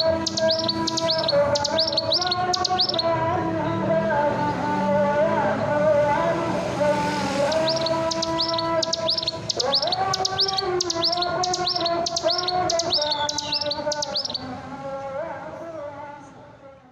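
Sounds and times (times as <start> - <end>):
bird chirping: 0.0 - 3.2, 7.2 - 14.6.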